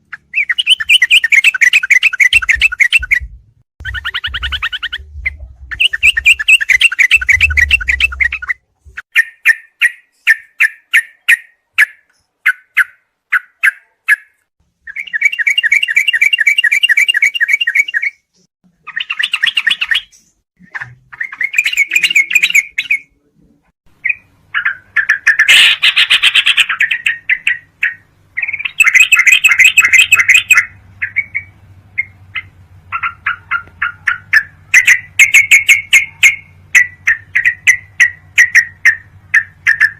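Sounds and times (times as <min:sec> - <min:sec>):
faint low hum: 0:02.4 - 0:09.0
bulbul chirps and chattering trills: 0:03.8 - 0:14.2, 0:18.8 - 0:23.1, 0:24.0 - 0:39.9.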